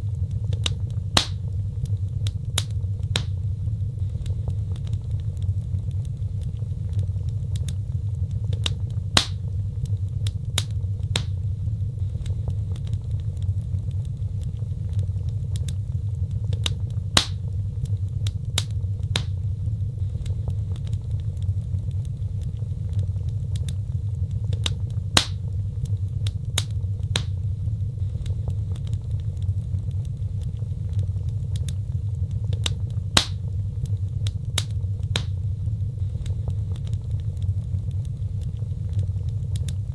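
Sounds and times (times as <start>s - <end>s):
fire popping and snapping: 0.0s - 39.9s
wood fire crackling: 0.0s - 39.9s.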